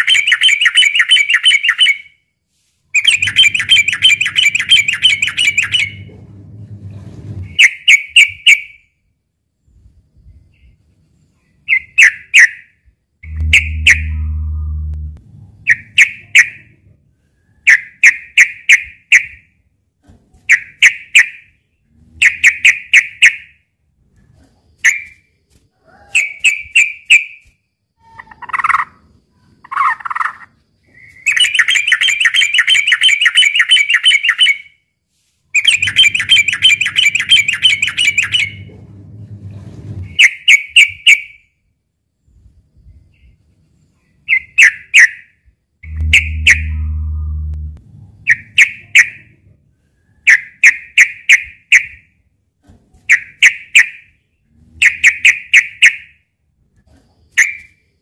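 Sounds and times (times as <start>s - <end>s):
bird singing bubbly phrases: 13.2s - 16.2s, 45.8s - 48.8s.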